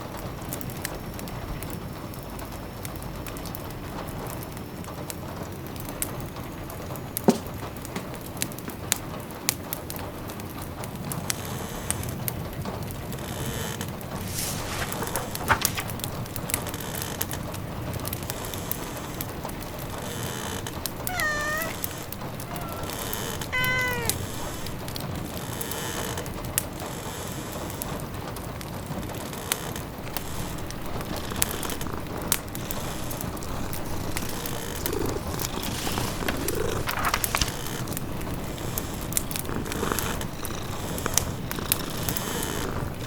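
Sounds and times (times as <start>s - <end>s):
rain pattering: 0.0s - 43.0s
wood fire crackling: 13.9s - 18.3s, 29.1s - 43.0s
cat meowing: 21.0s - 24.9s.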